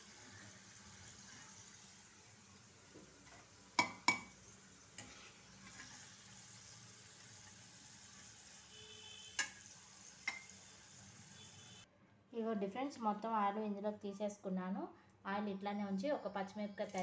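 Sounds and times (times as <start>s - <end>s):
potatoes sizzling in oil: 0.0s - 11.8s
metal ladle clanking on pan: 9.4s - 9.6s.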